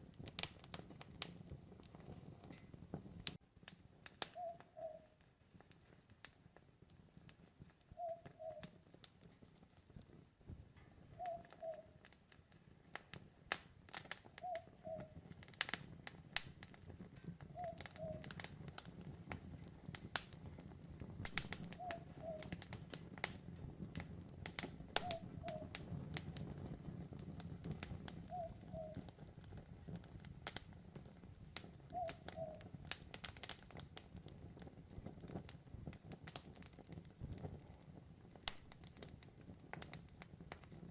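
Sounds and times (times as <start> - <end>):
campfire crackling and popping: 0.0 - 40.9
rustle of flames: 0.0 - 40.9
owl hooting: 4.3 - 5.2, 8.0 - 8.6, 11.2 - 12.0, 14.4 - 15.2, 17.5 - 18.3, 21.6 - 22.6, 25.0 - 25.7, 28.3 - 29.1, 31.9 - 32.6.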